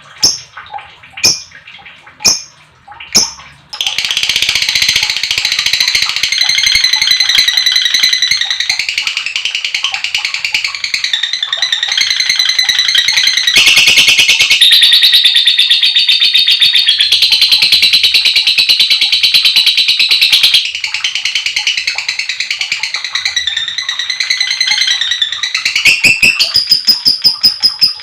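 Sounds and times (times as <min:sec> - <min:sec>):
lovebird chattering: 0:00.2 - 0:00.5, 0:02.2 - 0:02.5, 0:03.1 - 0:15.4, 0:21.6 - 0:28.0.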